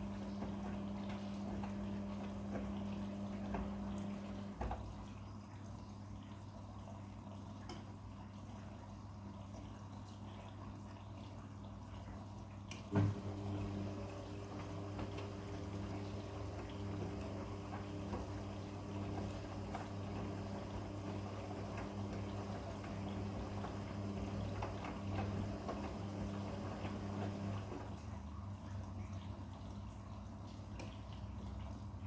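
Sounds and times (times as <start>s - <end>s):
drum motor humming: 0.0s - 4.8s, 13.0s - 27.9s
washing machine click: 0.0s - 4.9s, 12.7s - 27.9s
water sloshing in drum: 0.0s - 5.2s, 6.2s - 32.0s.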